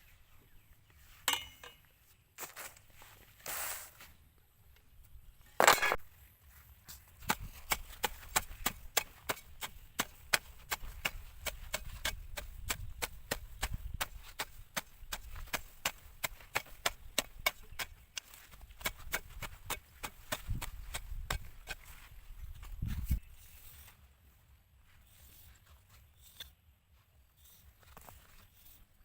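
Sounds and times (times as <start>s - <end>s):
hand tool chopping: 7.2s - 21.9s.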